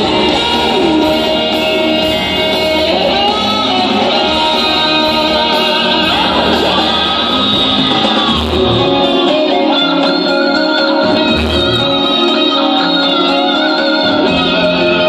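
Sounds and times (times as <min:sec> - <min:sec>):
steady bass: 0:00.0 - 0:09.4
electric guitar melody: 0:00.0 - 0:15.0.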